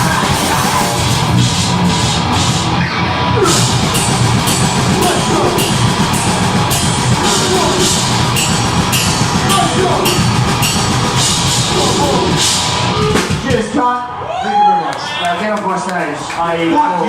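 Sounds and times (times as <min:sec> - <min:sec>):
distorted guitars and bass: 0:00.0 - 0:13.9
drums: 0:00.0 - 0:16.4
cymbal crashes: 0:03.4 - 0:13.3.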